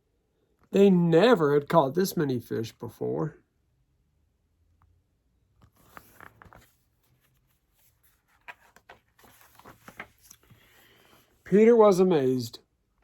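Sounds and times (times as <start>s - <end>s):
paper book rustling: 5.6s - 11.4s.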